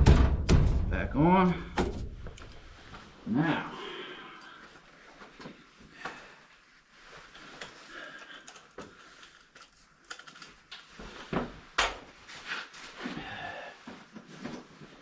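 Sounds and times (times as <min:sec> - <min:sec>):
metal parts clicking and knocking: 0:08.4 - 0:10.7.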